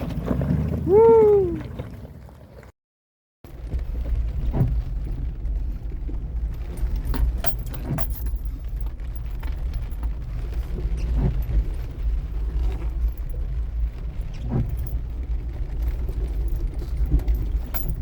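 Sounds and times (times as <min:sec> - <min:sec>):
vehicle engine rumble: 0:00.0 - 0:02.8, 0:03.4 - 0:18.0
jingling and rattling: 0:06.4 - 0:10.8, 0:11.4 - 0:18.0.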